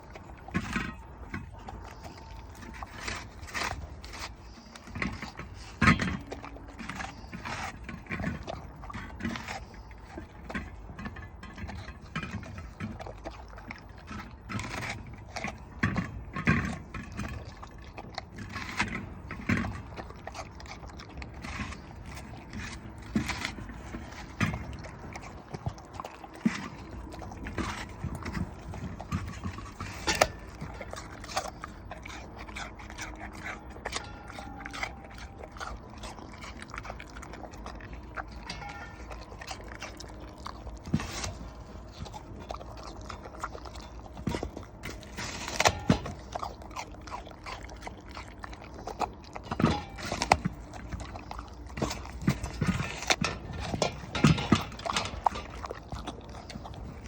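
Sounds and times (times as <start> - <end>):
dog crunching an apple: 0.0 - 57.0.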